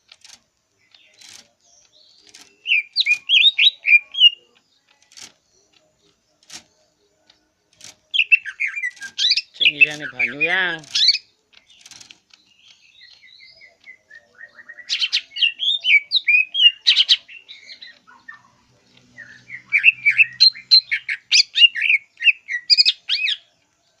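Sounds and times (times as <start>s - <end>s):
bird whistling and chirping: 1.9s - 4.5s, 8.1s - 11.3s, 12.8s - 18.6s, 19.2s - 23.5s.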